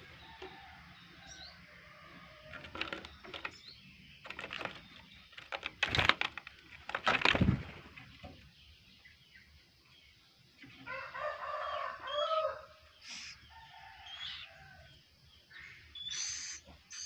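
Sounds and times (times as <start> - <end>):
loud flapping or knocking: 2.5 - 3.6, 4.2 - 8.3
clicks and rustling: 2.5 - 8.4
high bird chirps: 16.0 - 17.0.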